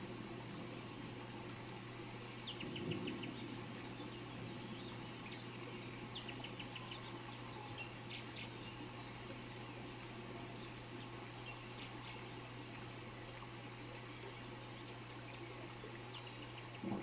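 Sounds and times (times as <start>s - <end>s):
rain hiss: 0.0s - 17.0s
songbird calling: 2.4s - 9.3s.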